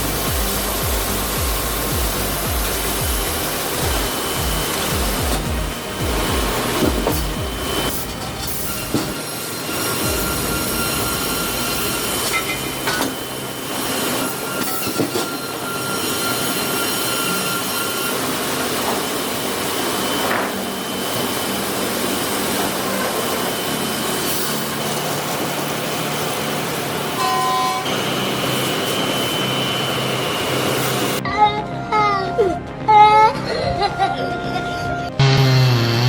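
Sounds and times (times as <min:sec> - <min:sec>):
wood-processing machinery running: 0:00.0 - 0:31.2, 0:34.8 - 0:36.0
faint high whines: 0:00.0 - 0:33.2
brief higher tone: 0:07.2 - 0:18.2, 0:27.2 - 0:28.0.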